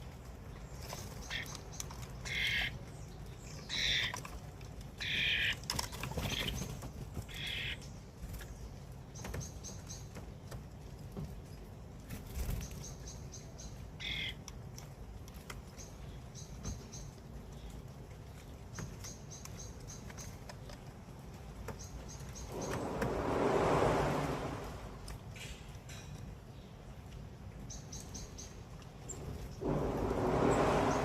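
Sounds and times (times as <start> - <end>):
birds making rasping calls: 0.9 - 3.0, 3.6 - 4.4, 5.0 - 8.0.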